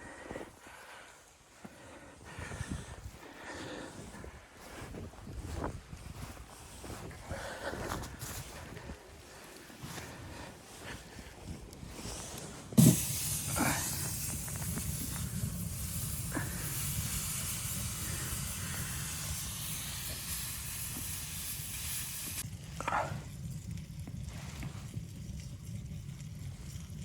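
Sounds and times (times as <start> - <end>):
steady hiss: 12.0 - 23.0.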